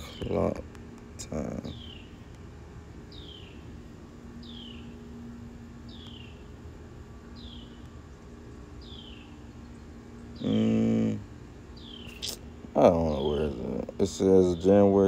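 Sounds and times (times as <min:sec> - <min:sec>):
faint steady hum: 0:00.0 - 0:15.0
bird chirping: 0:01.5 - 0:02.2, 0:03.1 - 0:03.7, 0:04.4 - 0:05.0, 0:05.8 - 0:06.5, 0:07.3 - 0:07.9, 0:08.8 - 0:11.1, 0:11.7 - 0:12.4.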